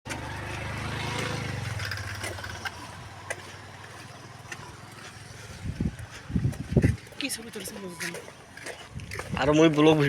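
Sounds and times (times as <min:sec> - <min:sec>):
low motor hum: 0:00.1 - 0:07.2.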